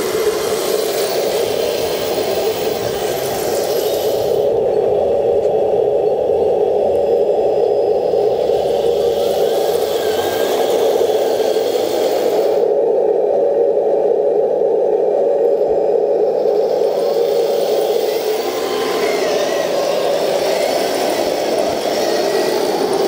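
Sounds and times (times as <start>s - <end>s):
high hiss: 0.0s - 4.7s, 7.9s - 12.8s, 16.2s - 23.0s
model tank motor whirring: 0.0s - 12.8s, 16.4s - 23.0s.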